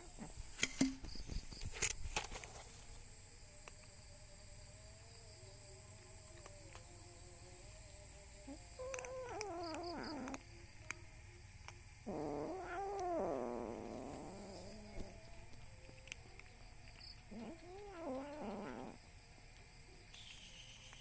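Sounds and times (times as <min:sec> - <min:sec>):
kitten meowing: 0:08.8 - 0:10.4, 0:12.1 - 0:15.2.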